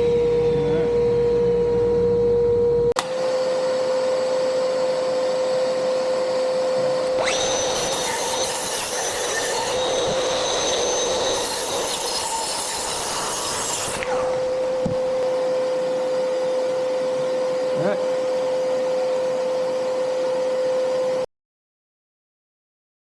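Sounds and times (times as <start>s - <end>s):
power tool motor whining: 3.0s - 20.2s.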